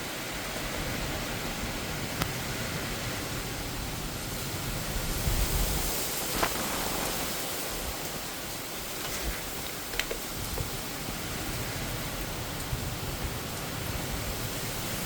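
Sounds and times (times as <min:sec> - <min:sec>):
heavy rain and wind: 0:00.0 - 0:15.0.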